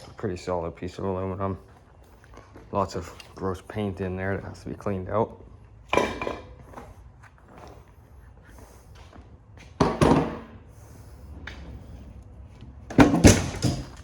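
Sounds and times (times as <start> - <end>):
metal parts and tools clattering: 12.9 - 14.0.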